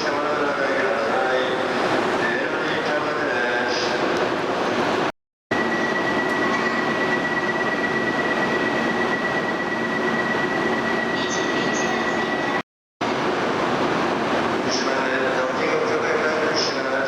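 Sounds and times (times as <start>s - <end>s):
train running noise: 0.0s - 17.0s
high even squeal: 5.6s - 12.6s.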